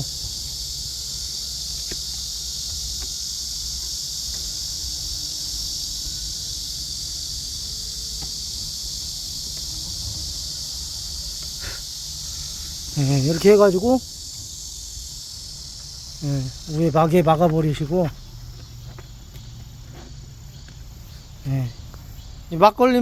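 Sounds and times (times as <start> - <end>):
insects singing: 0.0 - 23.0.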